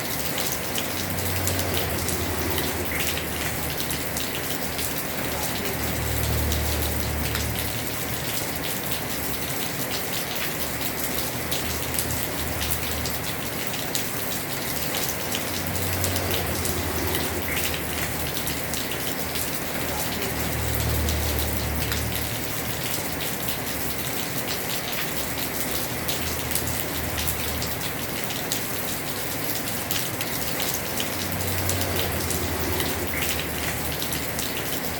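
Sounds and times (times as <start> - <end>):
heavy rain on a roof: 0.0 - 34.9.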